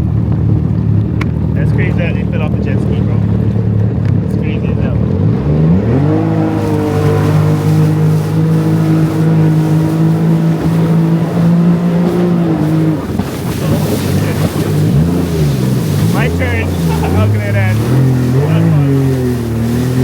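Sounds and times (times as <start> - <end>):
jet ski engine revving: 0.0 - 20.0.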